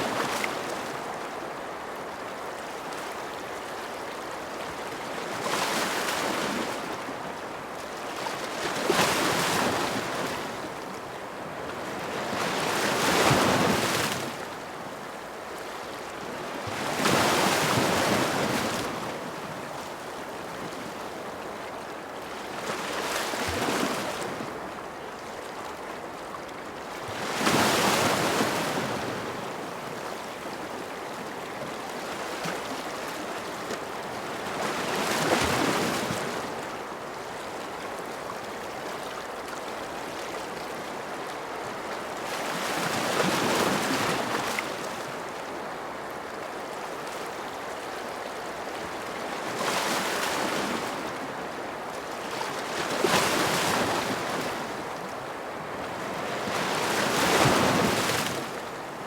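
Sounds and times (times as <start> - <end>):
ocean waves breaking on shore: 39.8 - 59.0.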